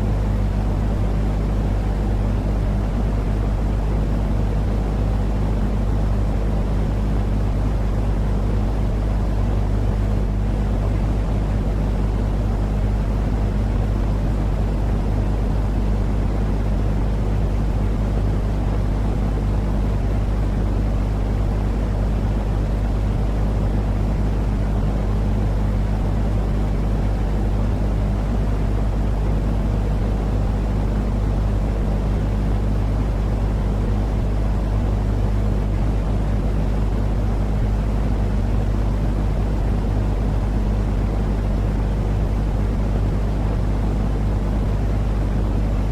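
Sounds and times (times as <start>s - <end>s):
deep rumbling white noise: 0.0s - 45.9s.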